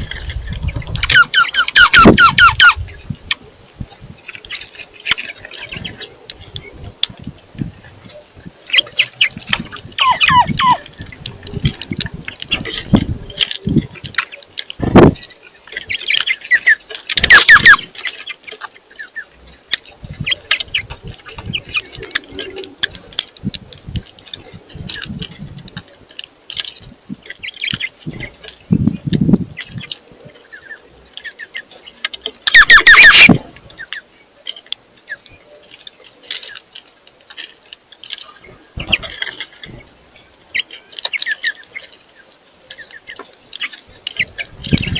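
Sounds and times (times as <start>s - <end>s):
birds chirping and calling: 0.0s - 44.9s
loud harsh bird squawks: 17.2s - 17.9s, 32.5s - 33.5s.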